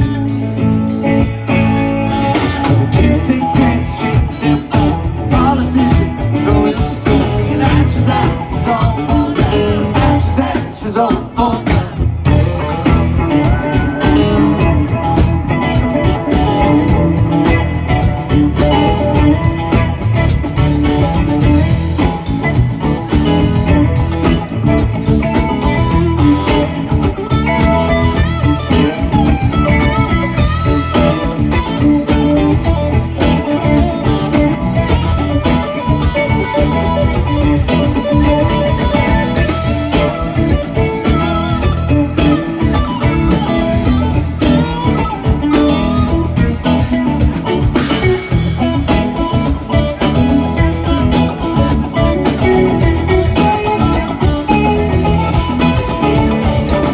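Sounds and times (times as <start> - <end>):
bass guitar: 0.0 - 56.9
drums: 0.0 - 56.9
electric guitar lead: 0.0 - 56.9.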